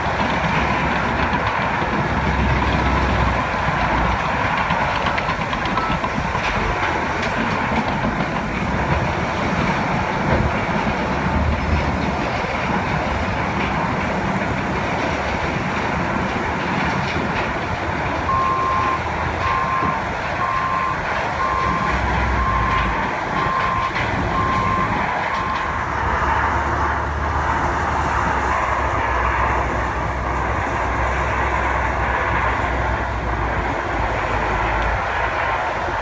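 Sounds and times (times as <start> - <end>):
heavy diesel engines running: 0.0 - 36.0
backup alarm beeping: 18.3 - 25.7.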